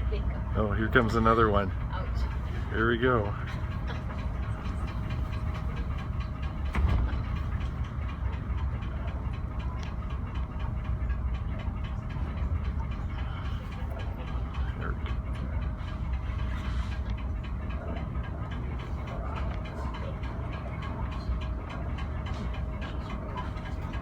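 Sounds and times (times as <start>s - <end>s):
ferry engine drone: 0.0s - 24.0s.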